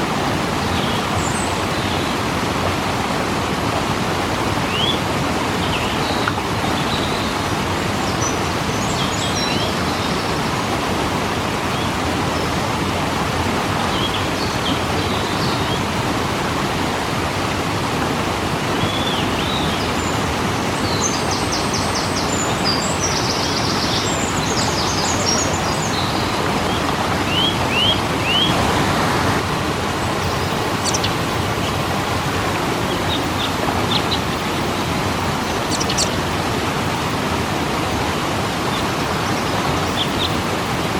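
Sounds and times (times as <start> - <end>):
waterfall rushing: 0.0 - 40.9
small birds chirping: 20.8 - 28.6, 30.2 - 31.2, 35.6 - 36.2.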